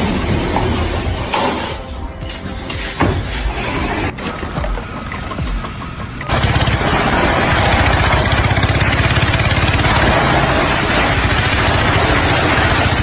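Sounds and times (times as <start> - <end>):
engine running with pulsing beat: 4.2 - 13.0.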